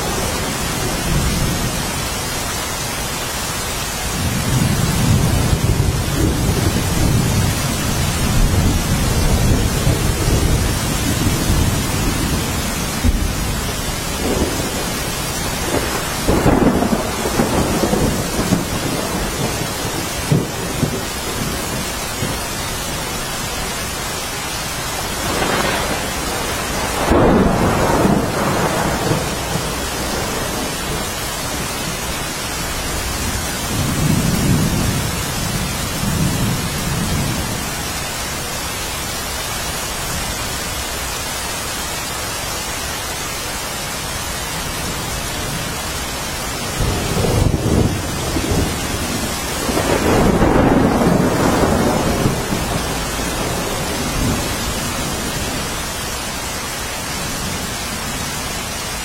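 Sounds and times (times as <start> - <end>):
steady rainfall: 0.0 - 59.0
rolling thunder: 4.1 - 24.0, 24.7 - 37.9, 44.8 - 56.4.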